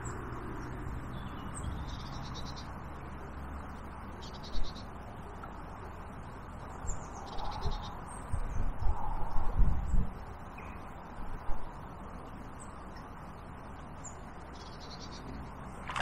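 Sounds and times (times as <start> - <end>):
small birds calling: 6.7 - 8.4, 14.0 - 16.0.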